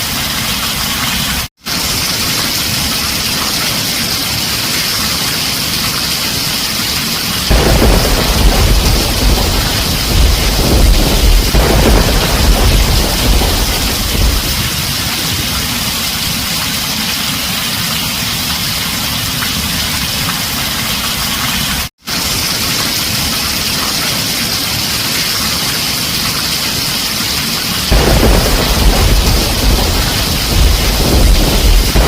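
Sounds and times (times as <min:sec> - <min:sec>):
heavy rain on a tin roof: 0:00.0 - 0:32.0
thunder rumble: 0:07.5 - 0:16.5, 0:27.9 - 0:32.0.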